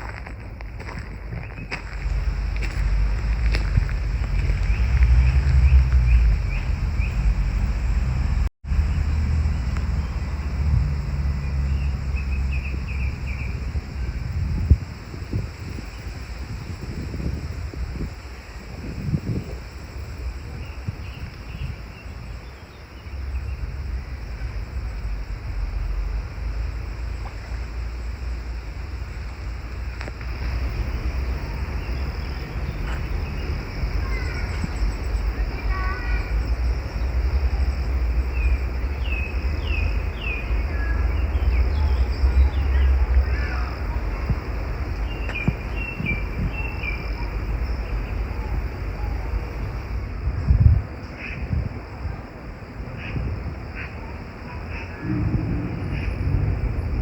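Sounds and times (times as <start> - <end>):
steady low rumble: 0.0 - 57.0
steady outdoor hiss: 0.0 - 57.0
wind buffeting microphone: 0.0 - 57.0
bird chirping: 4.4 - 8.0.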